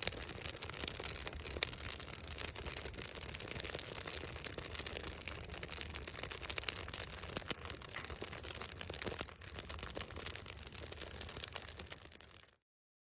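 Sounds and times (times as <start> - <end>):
wood fire crackling: 0.0 - 12.6.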